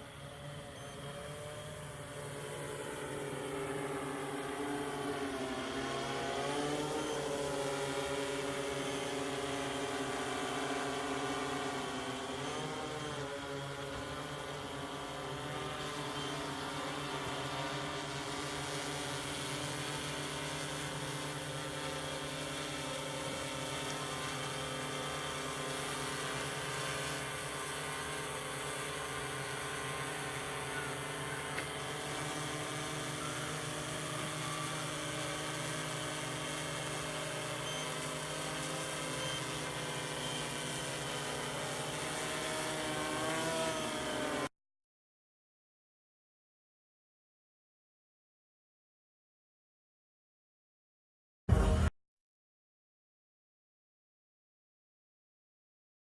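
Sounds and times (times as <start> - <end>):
quadcopter motors whining: 0.0 - 44.5.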